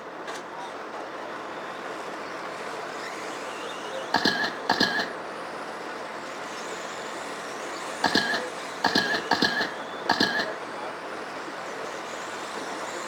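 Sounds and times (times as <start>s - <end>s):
electric toy trucks racing on dirt: 1.9s - 4.6s
short sharp beeps: 4.2s - 5.1s, 8.0s - 10.6s.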